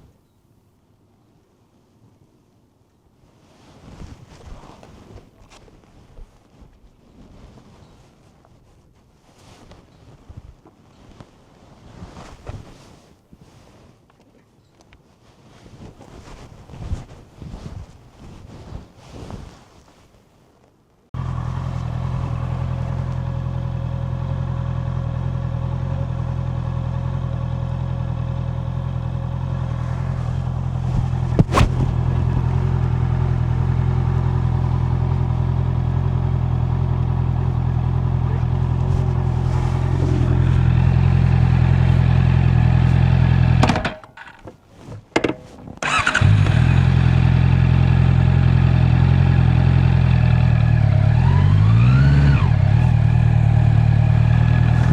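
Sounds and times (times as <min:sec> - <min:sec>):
motorcycle engine idling: 0:21.2 - 0:43.7, 0:45.8 - 0:51.6, 0:52.4 - 0:54.9.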